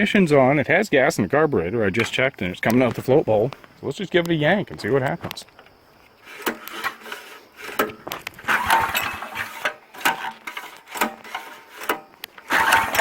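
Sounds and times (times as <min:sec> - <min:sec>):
recoil starter yanks: 0:06.2 - 0:13.0
small engine running: 0:12.4 - 0:13.0.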